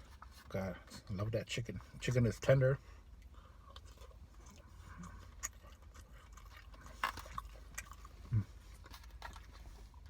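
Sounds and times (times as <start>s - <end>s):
low steady hum: 0.0s - 10.0s
person chewing: 3.0s - 10.0s.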